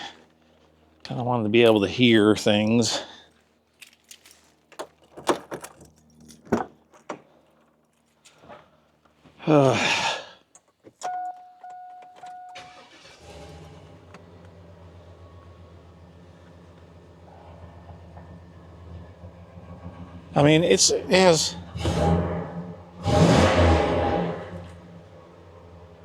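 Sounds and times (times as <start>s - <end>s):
keys jangling: 3.3s - 8.4s, 11.0s - 12.6s
two-tone warning chime: 11.0s - 13.1s
engine starting and idling: 11.1s - 26.0s.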